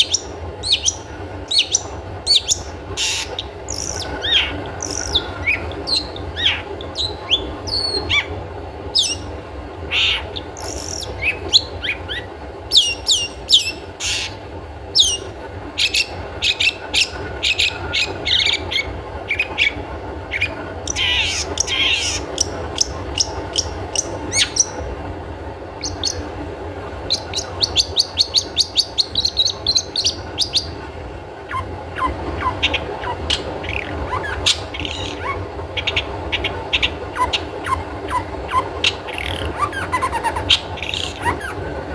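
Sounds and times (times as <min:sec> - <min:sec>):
steady low hum: 0:00.0 - 0:41.9
bird calling sharp sliding notes: 0:31.4 - 0:41.9.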